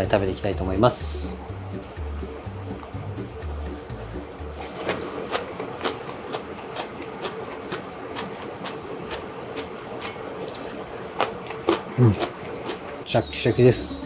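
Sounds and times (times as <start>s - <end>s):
crunchy chewing: 4.5s - 13.0s.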